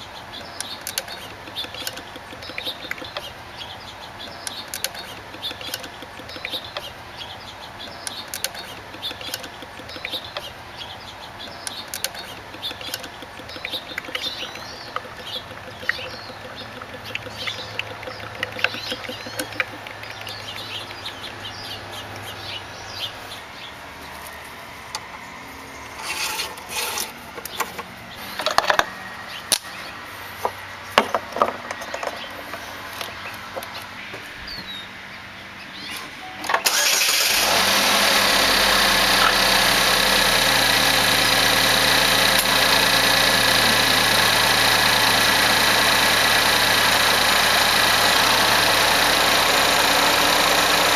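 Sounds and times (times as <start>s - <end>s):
scattered clicks and knocks: 0.0s - 3.4s, 4.2s - 7.0s, 7.8s - 10.6s, 11.4s - 21.2s, 30.4s - 34.2s
car engine starting and idling: 0.0s - 23.1s, 36.5s - 50.9s.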